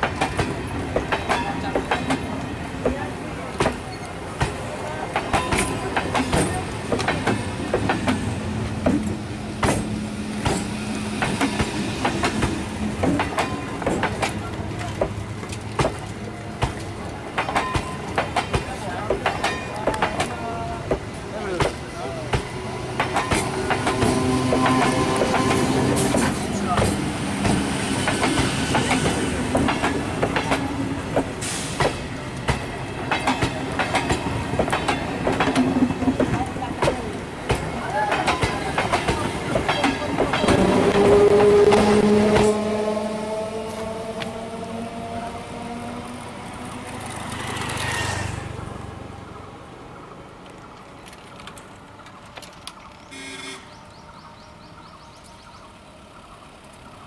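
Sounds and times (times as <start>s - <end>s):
train wheels clacking over rail joints: 0.0s - 42.7s.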